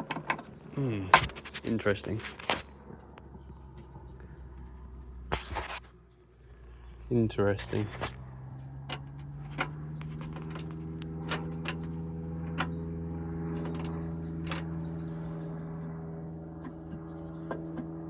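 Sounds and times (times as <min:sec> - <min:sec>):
low hum: 0:00.0 - 0:18.0
ignition key and switch clicks: 0:08.8 - 0:12.8, 0:13.5 - 0:14.8.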